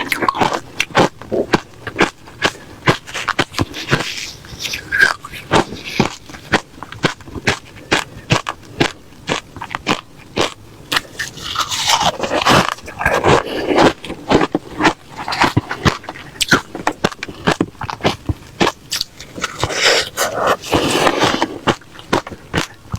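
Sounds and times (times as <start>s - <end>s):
ice being crunched and chewed: 0.0s - 22.9s.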